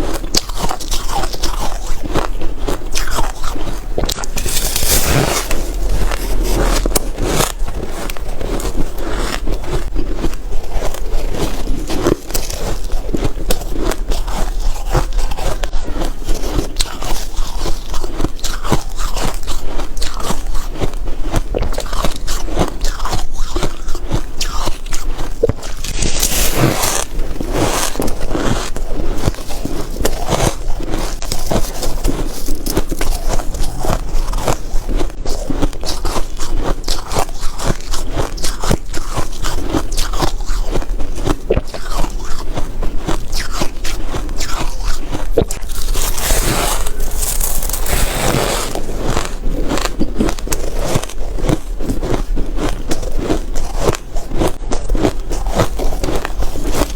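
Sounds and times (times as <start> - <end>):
chewing crunchy ice: 0.0 - 56.9.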